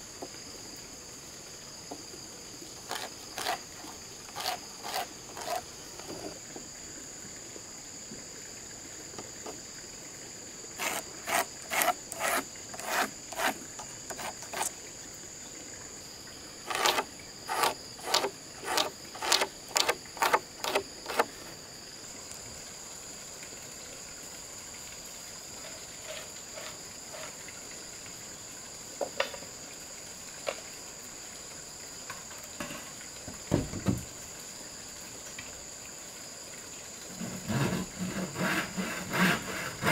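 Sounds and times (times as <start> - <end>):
crickets chirring: 0.0 - 39.9
tool knocks on wood: 33.5 - 34.0.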